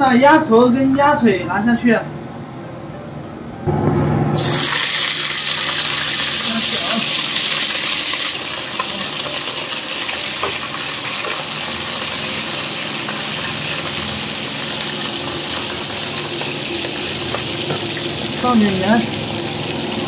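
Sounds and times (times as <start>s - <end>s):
meat sizzling in a wok: 4.4s - 20.0s.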